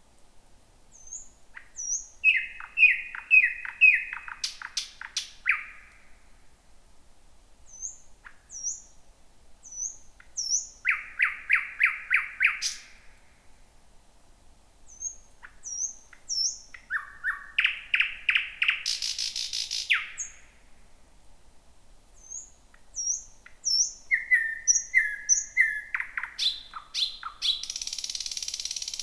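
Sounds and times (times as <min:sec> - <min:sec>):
sharp bird clicks: 0:25.0 - 0:29.0.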